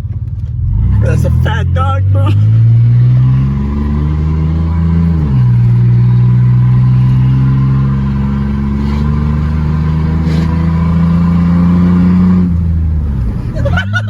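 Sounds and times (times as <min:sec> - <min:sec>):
loud unmuffled engine exhaust: 0:00.6 - 0:14.0.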